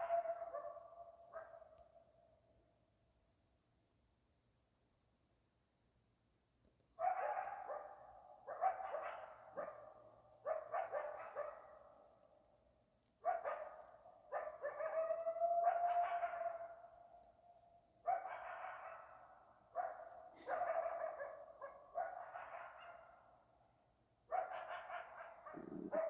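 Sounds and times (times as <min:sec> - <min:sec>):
coyotes yipping and barking: 0:07.0 - 0:11.8, 0:13.2 - 0:17.0, 0:18.1 - 0:23.5, 0:24.3 - 0:26.0
coyote howl: 0:25.5 - 0:26.0.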